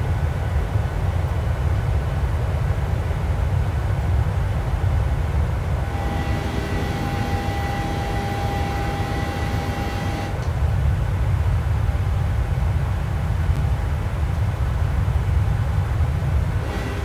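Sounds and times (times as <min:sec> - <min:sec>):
aircraft cabin engine rumble: 0:00.0 - 0:17.0
steady whine: 0:05.6 - 0:10.8, 0:16.0 - 0:17.0.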